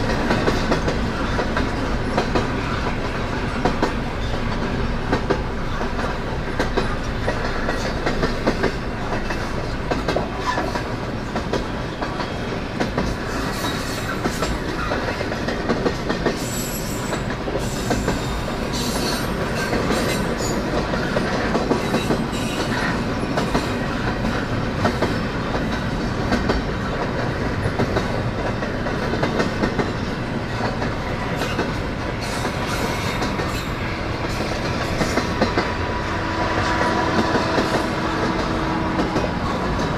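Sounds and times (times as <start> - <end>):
freight train cars rolling past: 0.0 - 39.9.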